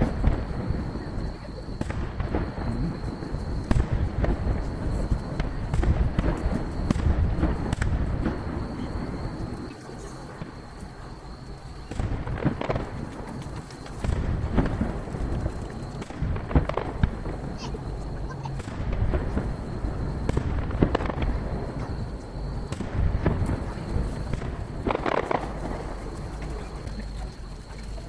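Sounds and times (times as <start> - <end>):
firework shells bursting: 11.9 - 17.9, 18.5 - 27.2.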